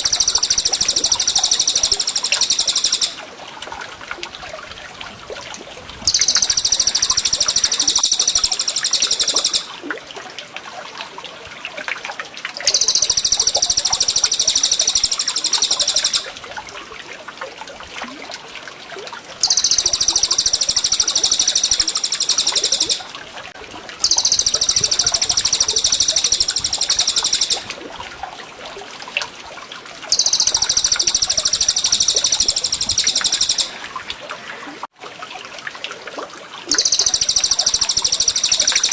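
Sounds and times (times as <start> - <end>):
songbird trilling: 0.0 - 3.2, 6.1 - 9.7, 12.7 - 16.3, 19.4 - 23.1, 24.0 - 27.7, 30.1 - 33.8, 36.7 - 38.9
water trickling: 0.0 - 11.5, 12.2 - 38.9.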